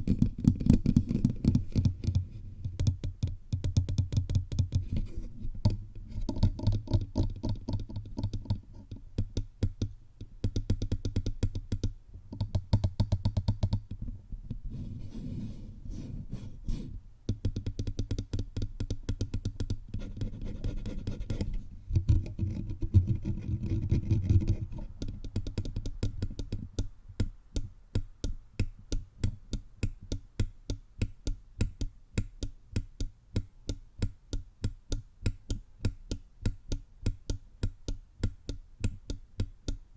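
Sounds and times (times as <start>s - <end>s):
scratching on microphone: 0.0s - 2.5s, 4.8s - 9.0s, 14.5s - 17.0s, 19.9s - 25.2s
fingertips tapping on microphone: 0.0s - 15.1s, 15.9s - 39.9s.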